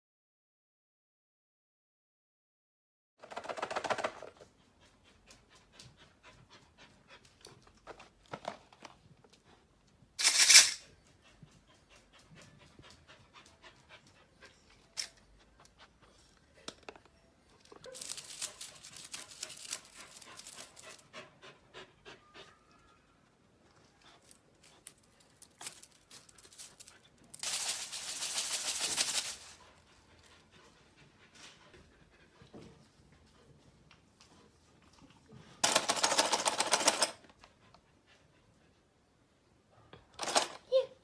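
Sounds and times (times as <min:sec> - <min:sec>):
dog panting: 0:03.5 - 0:08.1, 0:10.8 - 0:16.8, 0:17.9 - 0:22.7, 0:28.6 - 0:35.6, 0:37.2 - 0:39.3.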